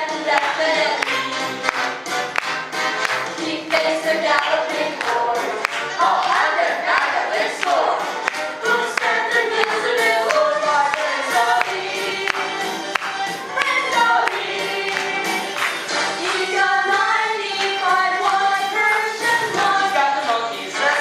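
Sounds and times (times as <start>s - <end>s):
young performers singing in chorus: 0.0s - 1.8s, 2.8s - 21.0s
musical accompaniment with steady beat: 0.0s - 21.0s.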